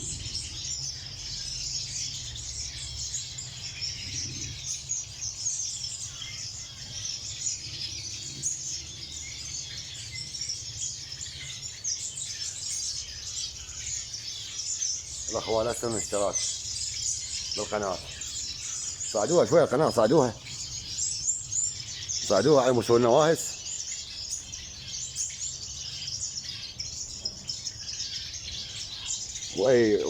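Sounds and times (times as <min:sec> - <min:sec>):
low steady rumble: 0:00.0 - 0:02.9
small birds chirping: 0:00.0 - 0:30.0.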